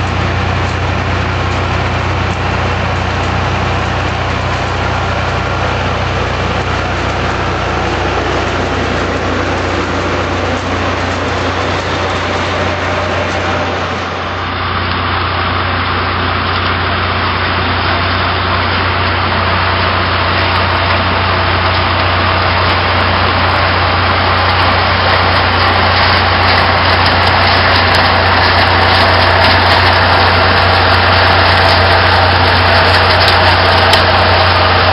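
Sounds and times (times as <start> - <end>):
machinery engine drone: 0.0 - 34.9.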